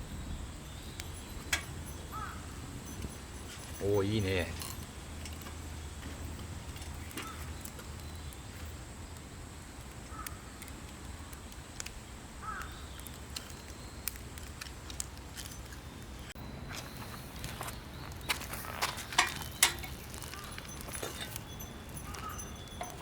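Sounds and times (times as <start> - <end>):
wood fire crackling: 0.0 - 23.0
crow cawing: 2.1 - 2.5, 10.1 - 10.5, 12.4 - 12.8.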